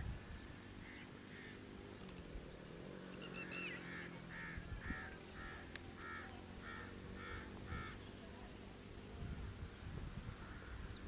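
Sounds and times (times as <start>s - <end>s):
bird calling: 0.0s - 2.2s, 3.0s - 8.6s.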